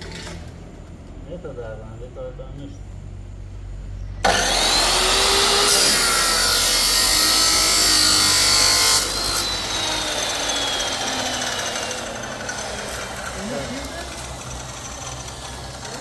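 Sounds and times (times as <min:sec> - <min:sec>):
power tool whining motor: 0:04.2 - 0:16.0.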